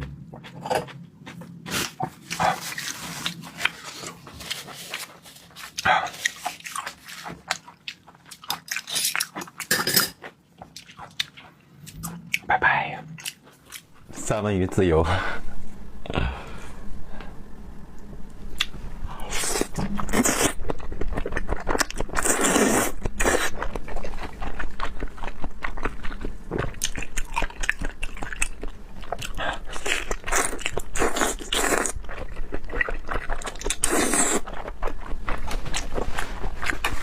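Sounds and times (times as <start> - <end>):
chewing and biting: 0.3 - 12.5, 13.1 - 14.0, 19.3 - 37.0.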